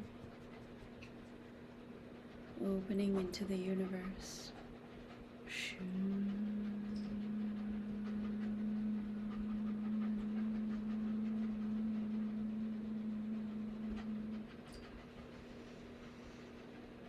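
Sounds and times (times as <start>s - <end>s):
person humming low note: 5.5s - 14.6s.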